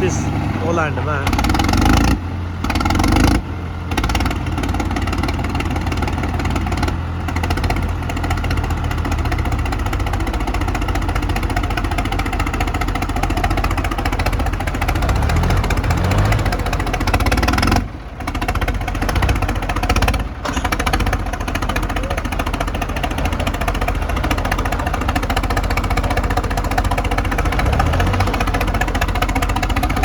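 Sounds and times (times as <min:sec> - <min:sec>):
diesel tractor engine running: 0:00.0 - 0:30.0.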